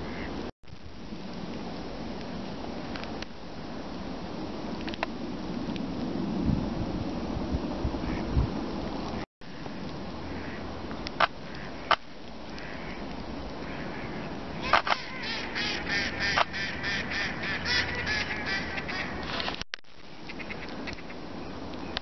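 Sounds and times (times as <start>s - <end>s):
ducks quacking: 0.0s - 0.4s, 10.3s - 10.7s, 12.6s - 13.0s, 13.6s - 19.5s
wind noise: 0.0s - 22.0s
sharp clicks: 14.7s - 15.1s.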